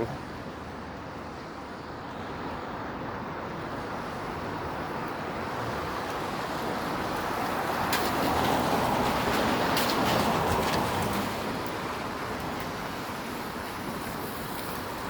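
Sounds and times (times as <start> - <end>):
tyre hiss on wet road: 5.7 - 15.0.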